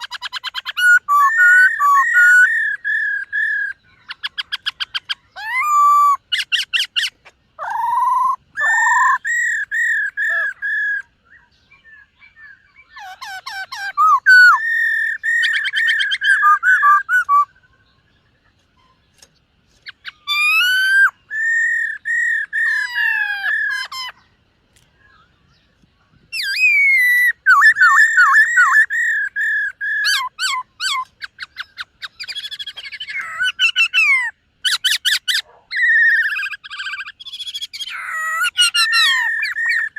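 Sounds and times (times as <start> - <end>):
bird singing whistled phrases: 0.0 - 18.0, 19.9 - 24.2, 26.3 - 39.9.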